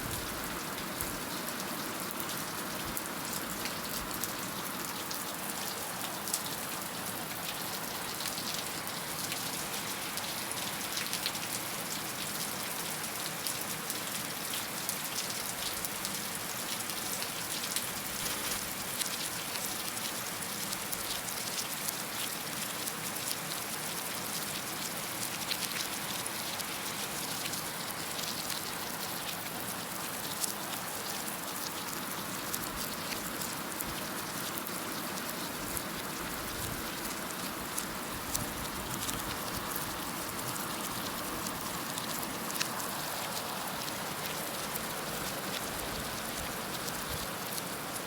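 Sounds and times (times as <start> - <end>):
heavy rain pattering: 24.2 - 48.0.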